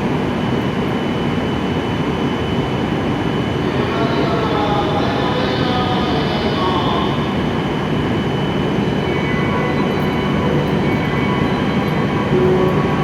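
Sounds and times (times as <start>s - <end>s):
train equipment running: 3.7s - 13.0s.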